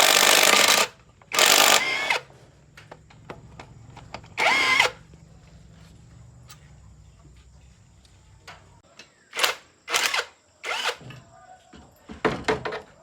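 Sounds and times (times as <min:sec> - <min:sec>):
small power tool humming: 0:00.0 - 0:02.2, 0:04.4 - 0:05.0, 0:09.9 - 0:11.0.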